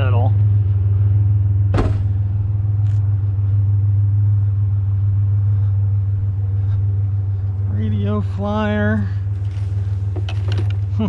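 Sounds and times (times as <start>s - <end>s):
truck engine humming: 0.0s - 11.0s
sharp knock: 1.7s - 2.2s.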